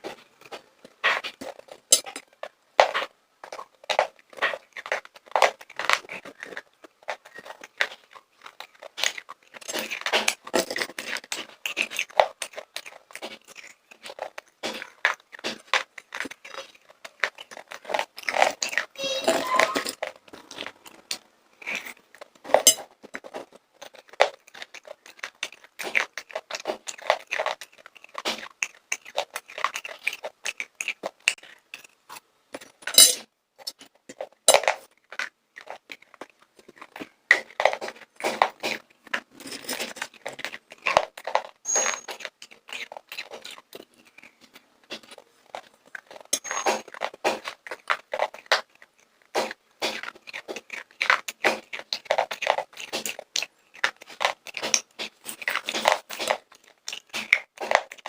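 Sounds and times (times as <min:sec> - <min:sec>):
popcorn crunching and chewing: 0:00.0 - 0:58.0.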